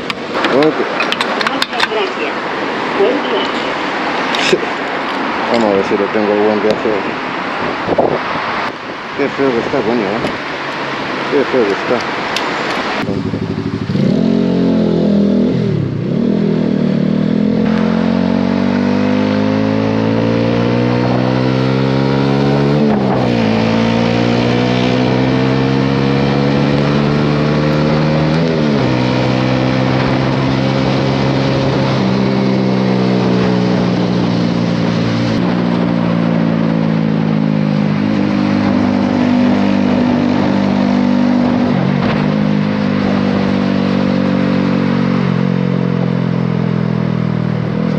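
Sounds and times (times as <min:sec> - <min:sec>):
motorcycle engine accelerating: 0:12.6 - 0:47.9.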